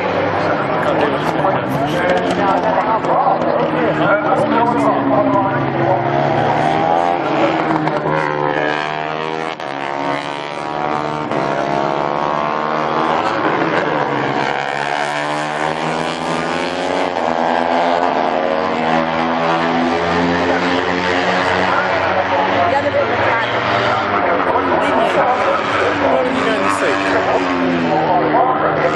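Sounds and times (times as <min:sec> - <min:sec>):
racing motorcycle engines revving: 0:00.0 - 0:28.9.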